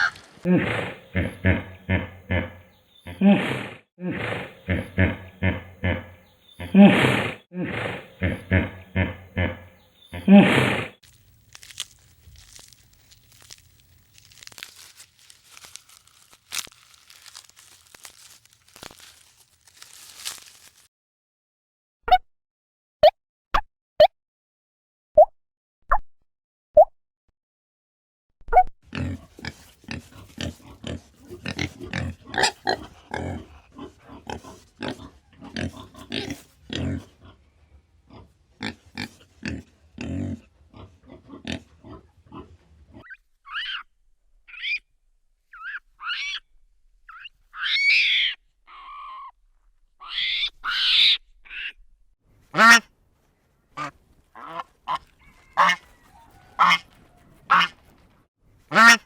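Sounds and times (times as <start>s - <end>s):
higher-pitched pig calls: 0.0s - 11.0s, 38.1s - 43.9s, 44.5s - 44.9s, 45.5s - 46.5s, 47.1s - 49.4s, 50.0s - 51.8s, 53.8s - 57.8s
pigs grunting: 0.0s - 11.0s, 28.9s - 43.8s.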